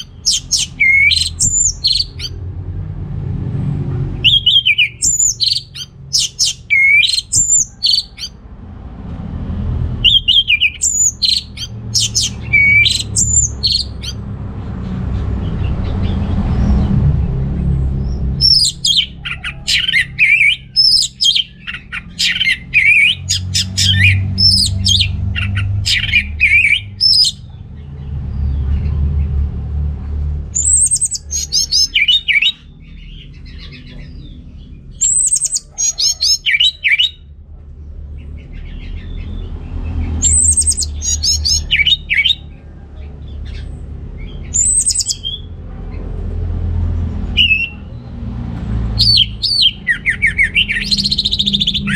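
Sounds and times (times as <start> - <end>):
thrush singing: 0.0 - 2.5, 3.8 - 8.4, 10.0 - 14.5, 15.4 - 27.5, 47.3 - 48.0, 48.8 - 51.9
low rumble: 0.0 - 6.2, 7.7 - 32.0.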